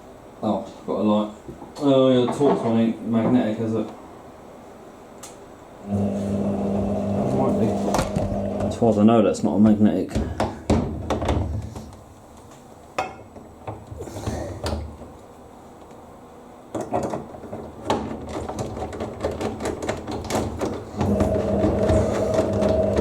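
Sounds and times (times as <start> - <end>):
steady hum: 2.9 - 17.9, 20.6 - 23.0.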